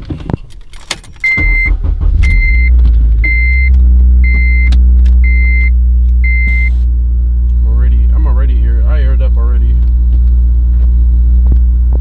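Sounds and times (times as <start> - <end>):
car engine starting and idling: 0.0 - 12.0
dashboard warning chime beeping: 0.8 - 6.8.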